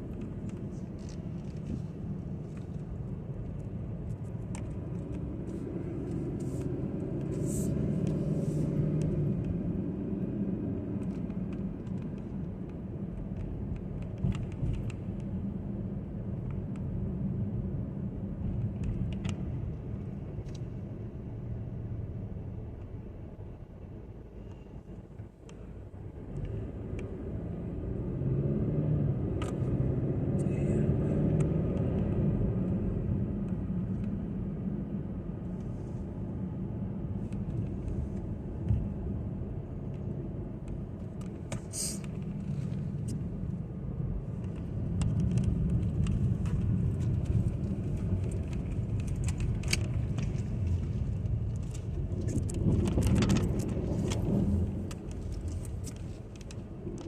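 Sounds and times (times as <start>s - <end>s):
road and engine noise in car: 0.0s - 57.0s
small clicks and rattles: 44.4s - 57.0s.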